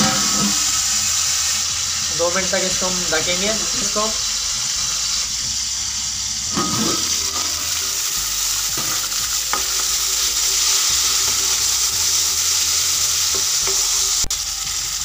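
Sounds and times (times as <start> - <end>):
onions frying in oil: 0.0 - 15.0
metal lid clattering: 6.5 - 7.5.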